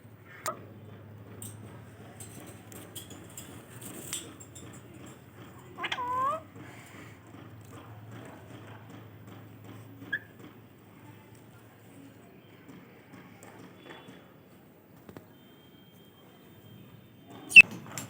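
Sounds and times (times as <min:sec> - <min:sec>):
parrot squawking: 0:05.7 - 0:06.5.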